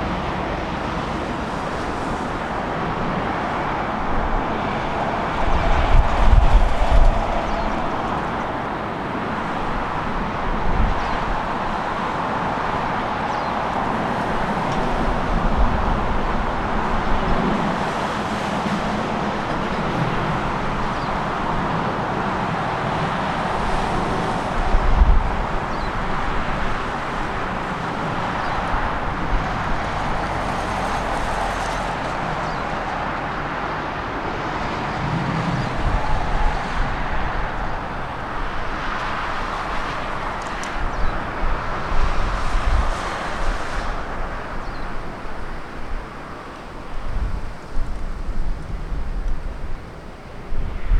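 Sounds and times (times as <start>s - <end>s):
jet engine noise: 0.0s - 50.9s
wind buffeting microphone: 0.0s - 50.9s.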